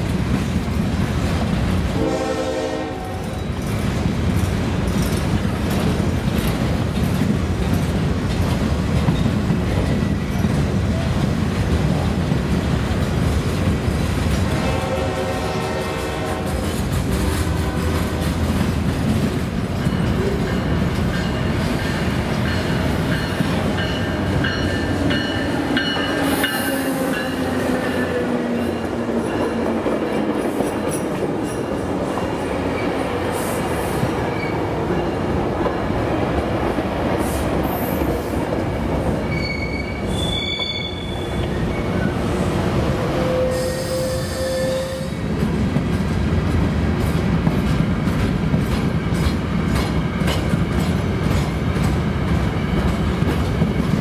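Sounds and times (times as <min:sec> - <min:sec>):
train running on track: 0:00.0 - 0:54.0
wheels squealing: 0:39.2 - 0:42.2.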